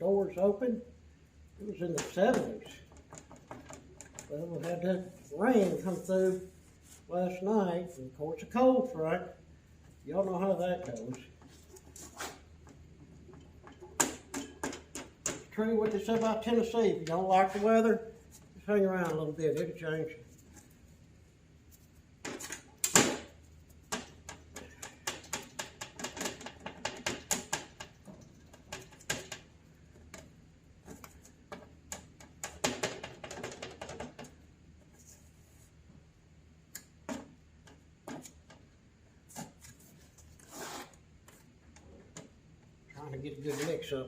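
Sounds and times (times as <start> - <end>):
spreader scraping on board: 40.3 - 41.0.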